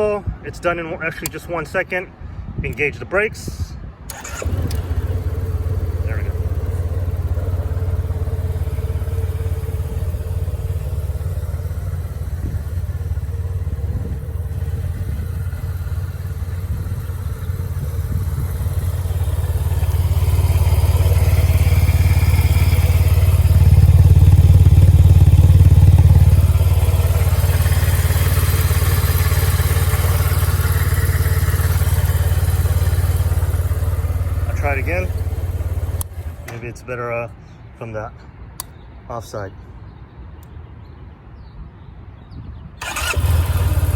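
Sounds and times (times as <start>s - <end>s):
scooter engine running: 4.1s - 36.6s, 42.8s - 43.9s.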